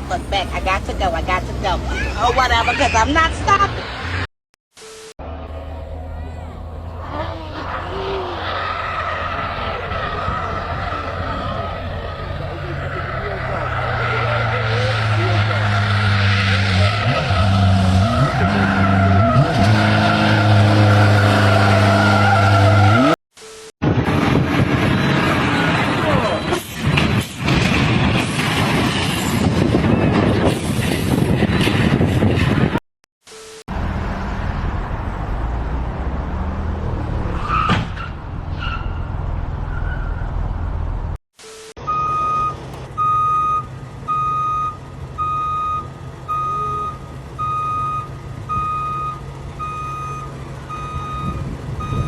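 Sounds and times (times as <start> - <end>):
noisy vehicle: 0.0 - 52.0
tyres squealing: 1.8 - 3.4
car engine running hard: 5.2 - 21.8.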